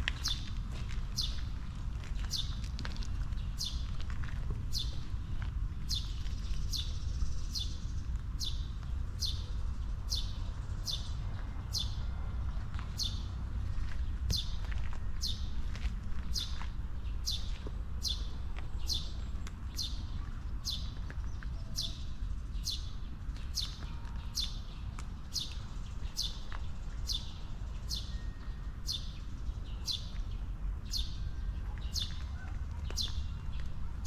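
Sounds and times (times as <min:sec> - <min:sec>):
low steady rumble: 0:00.0 - 0:24.2.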